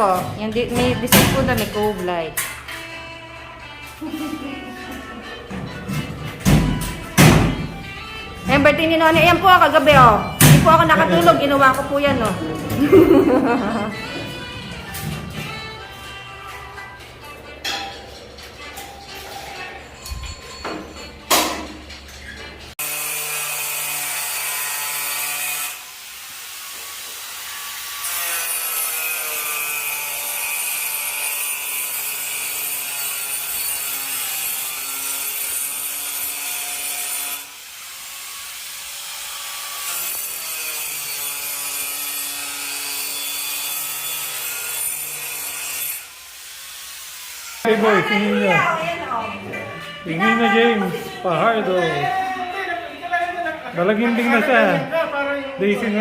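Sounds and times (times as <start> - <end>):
power saw cutting wood: 22.8 - 48.2.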